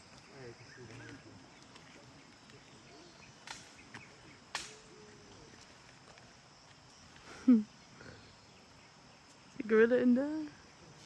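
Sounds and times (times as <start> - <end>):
insects humming: 0.0 - 11.0
twigs snapping: 3.4 - 4.8.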